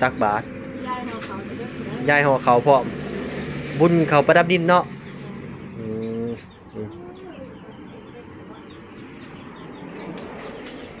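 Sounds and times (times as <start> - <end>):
low steady bird call: 4.8 - 11.0.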